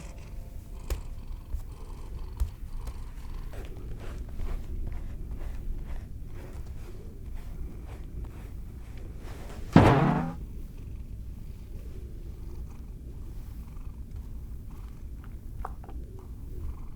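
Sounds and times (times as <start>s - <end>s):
body thudding onto floor: 9.8s - 10.4s
large cat purring: 9.8s - 10.4s.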